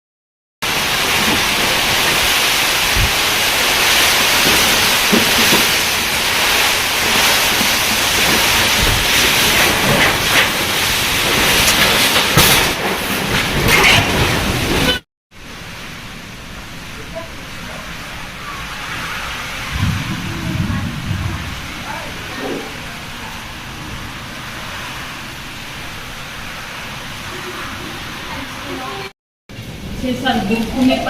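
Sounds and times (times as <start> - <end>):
heavy rain in wind storm: 0.6 - 31.0
low thumps: 19.7 - 22.8.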